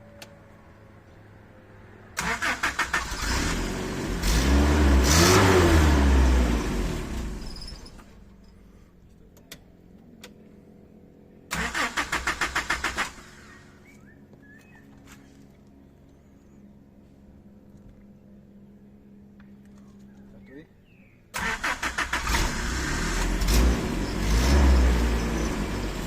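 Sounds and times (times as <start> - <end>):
engine starter cranking: 2.2 - 3.3, 11.5 - 13.5, 21.4 - 23.4
engine revving and stopping: 2.2 - 8.0, 11.5 - 14.0, 21.4 - 26.0.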